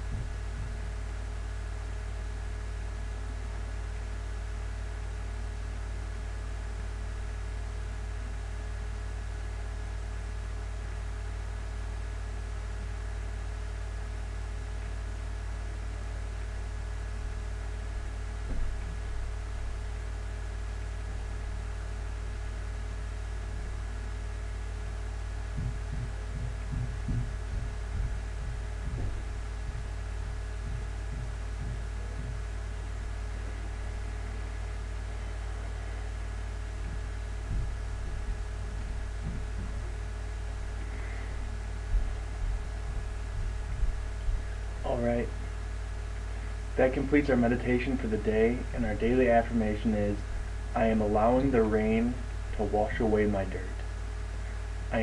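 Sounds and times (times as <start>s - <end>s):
soft low bumps: 0.0s - 3.6s, 15.5s - 47.2s
low electrical hum: 0.0s - 55.0s.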